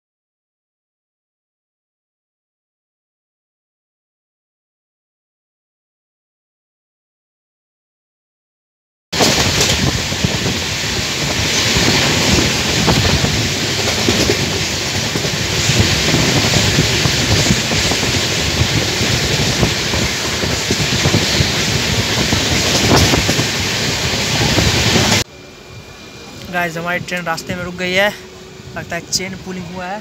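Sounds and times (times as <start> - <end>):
rail joint clicks: 9.2 - 25.2, 26.3 - 27.6
wind on microphone: 9.2 - 25.2
train wheels rushing on rails: 9.2 - 30.0.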